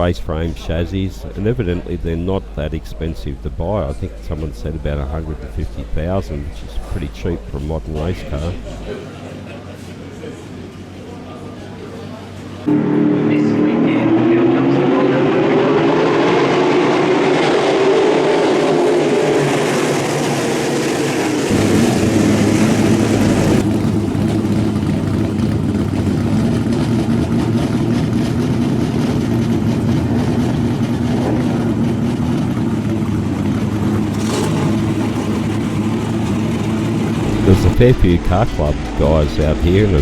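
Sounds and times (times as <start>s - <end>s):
car engine running hard: 0.0s - 8.9s, 12.6s - 40.0s.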